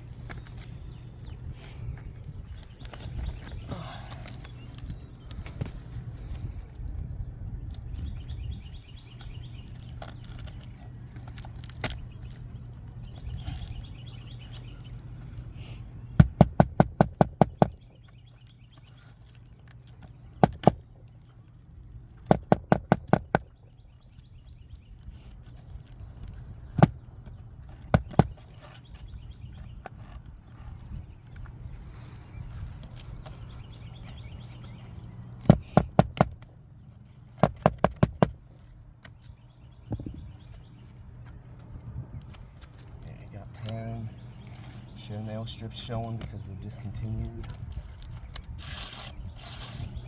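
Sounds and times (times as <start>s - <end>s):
sharp rapid knocks: 20.4s - 20.8s, 22.3s - 23.5s, 27.9s - 28.4s, 35.5s - 36.4s, 37.4s - 38.4s.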